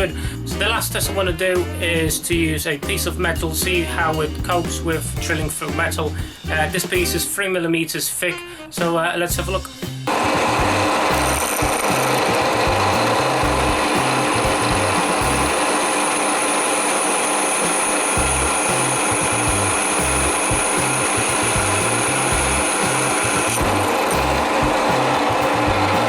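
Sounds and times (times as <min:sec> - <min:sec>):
background music with bass: 0:00.0 - 0:07.4, 0:09.3 - 0:15.6, 0:18.1 - 0:26.0
drill grinding into steel: 0:10.1 - 0:26.0.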